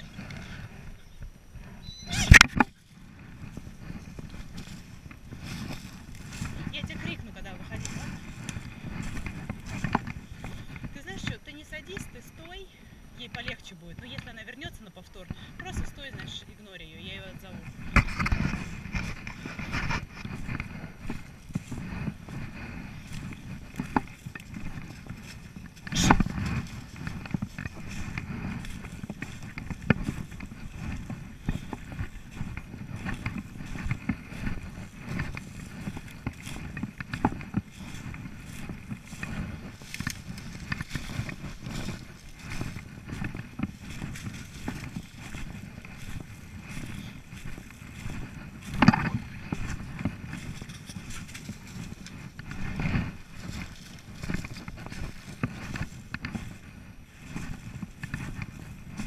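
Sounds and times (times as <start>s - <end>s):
footsteps on rough ground: 0.0s - 59.0s.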